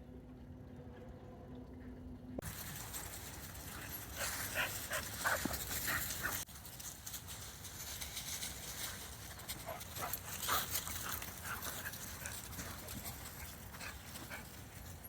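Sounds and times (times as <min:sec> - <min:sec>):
dogs barking and yipping: 0:02.4 - 0:07.4, 0:08.2 - 0:15.0
dogs panting: 0:02.5 - 0:15.0.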